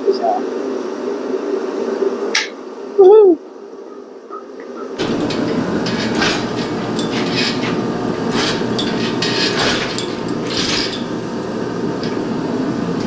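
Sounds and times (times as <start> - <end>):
clanks and rattles: 5.0 - 13.0
engine hoist rolling rumble: 5.0 - 13.0.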